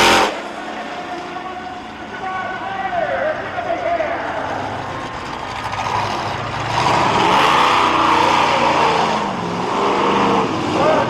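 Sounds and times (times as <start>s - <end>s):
monster truck engine revving: 0.0s - 1.1s, 4.2s - 11.0s.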